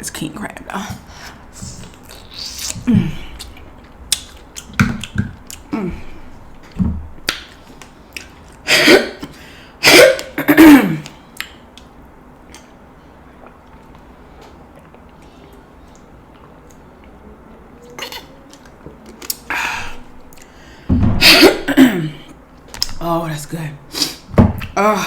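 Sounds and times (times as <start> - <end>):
woman coughing: 8.7 - 9.2, 9.8 - 11.0, 21.2 - 22.3
woman clearing her throat: 21.2 - 22.3.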